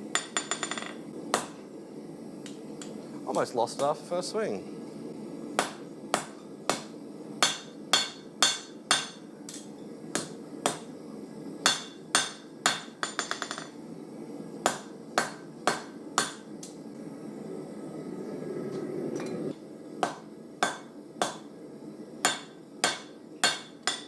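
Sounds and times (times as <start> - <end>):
steady low hum: 0.0 - 24.0
hammer striking steel on anvil: 0.2 - 1.6, 5.6 - 10.9, 11.6 - 13.7, 14.7 - 16.5, 20.0 - 21.5, 22.2 - 24.0.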